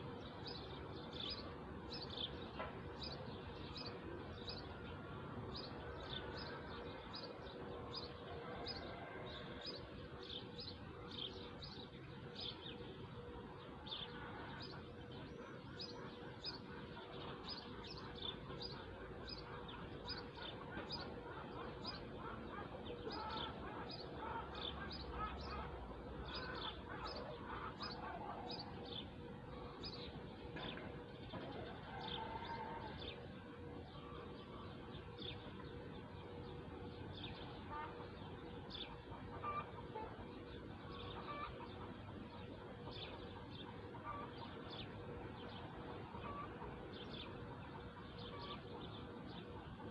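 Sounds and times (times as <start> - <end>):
outdoor background noise: 0.0 - 49.9
bird chirping: 33.9 - 49.8.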